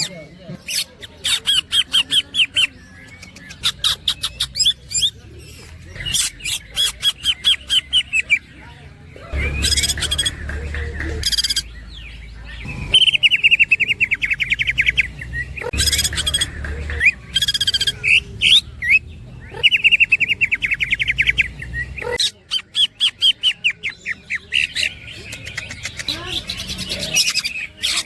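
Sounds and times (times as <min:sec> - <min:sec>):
bird chattering trills: 0:00.0 - 0:28.0
clipped tapping bird notes: 0:09.4 - 0:19.0.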